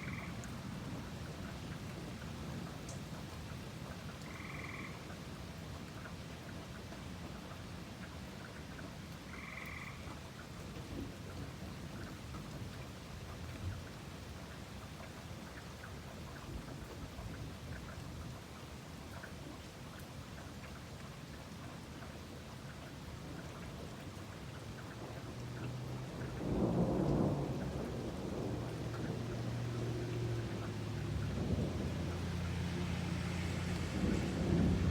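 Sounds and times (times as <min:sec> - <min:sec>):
rain falling: 0:00.0 - 0:34.9
thunder rumbling: 0:26.1 - 0:34.9.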